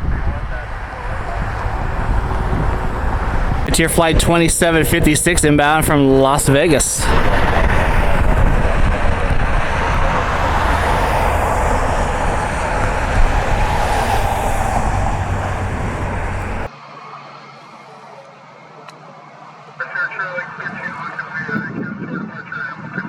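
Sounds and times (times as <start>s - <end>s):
jet airliner passing overhead: 0.0s - 16.7s.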